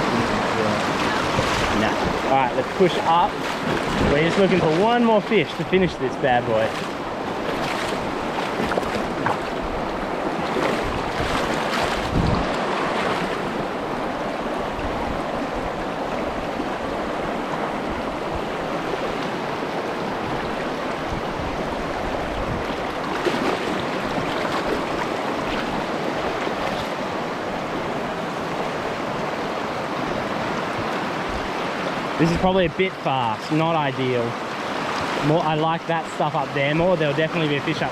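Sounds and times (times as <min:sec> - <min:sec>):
wind buffeting microphone: 0:00.0 - 0:04.9, 0:06.7 - 0:19.1, 0:19.9 - 0:26.8
knocks or splashes: 0:00.0 - 0:05.7, 0:06.4 - 0:09.6, 0:10.4 - 0:13.4, 0:23.1 - 0:24.9
rushing mountain stream: 0:00.0 - 0:37.9.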